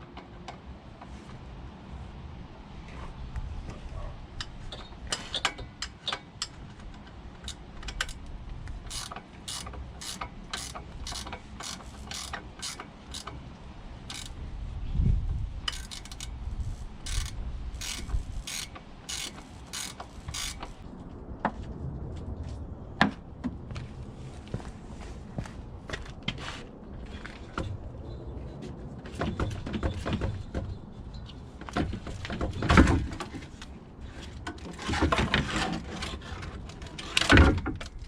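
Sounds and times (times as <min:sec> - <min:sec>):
socket ratchet clicking: 0:08.9 - 0:13.4, 0:14.1 - 0:14.4, 0:15.7 - 0:20.8.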